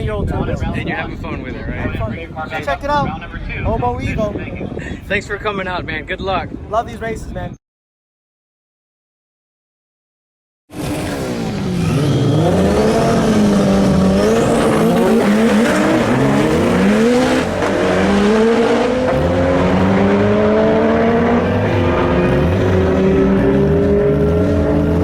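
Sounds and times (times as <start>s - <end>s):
race car engines revving: 10.7s - 25.0s.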